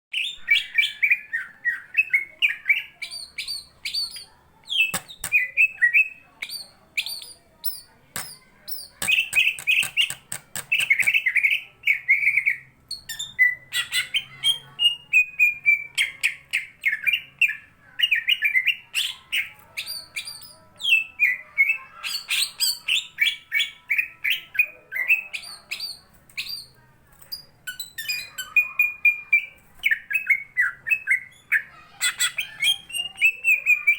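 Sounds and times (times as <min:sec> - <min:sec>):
bird singing chirps and twitters: 0:00.1 - 0:33.9
sharp clicks: 0:08.1 - 0:11.2.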